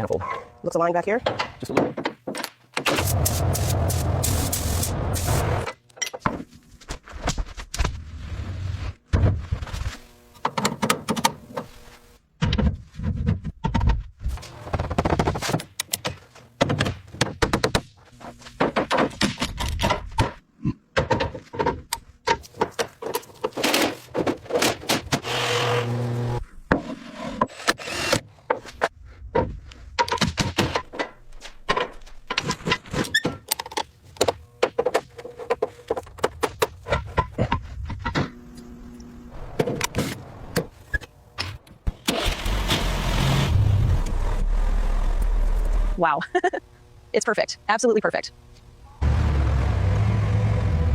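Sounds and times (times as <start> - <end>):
workshop knocks and thuds: 1.2 - 3.3, 14.7 - 25.4.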